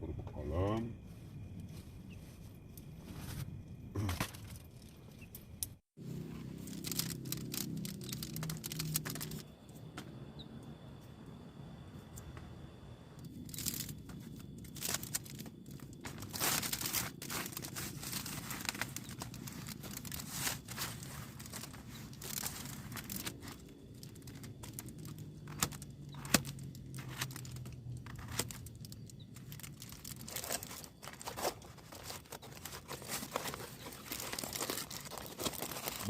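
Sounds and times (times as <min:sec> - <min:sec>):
plastic packaging crinkling: 0:06.4 - 0:09.4, 0:13.3 - 0:36.0.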